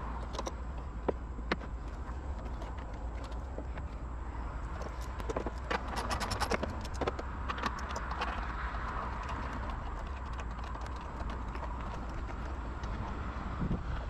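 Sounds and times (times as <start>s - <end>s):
steady low rumble: 0.0s - 14.0s
sharp clicks and clinks: 4.7s - 13.2s.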